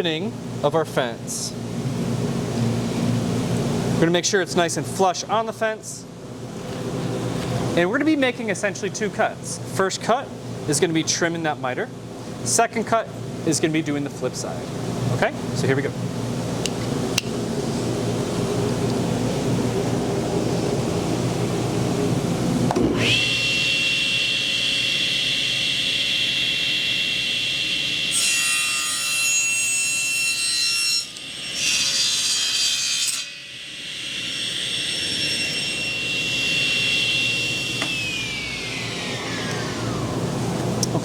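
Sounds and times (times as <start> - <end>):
table saw whining: 22.7 - 41.0.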